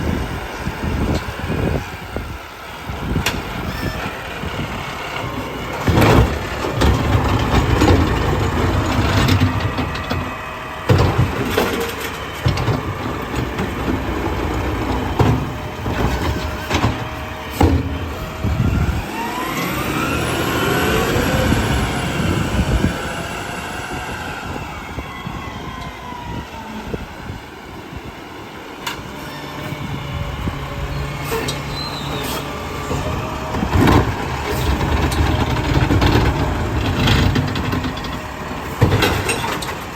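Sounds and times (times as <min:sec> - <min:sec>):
garbage truck engine: 0:00.0 - 0:39.9
rising hydraulic whines: 0:00.0 - 0:39.9
sharp knocks and bangs: 0:14.9 - 0:18.3.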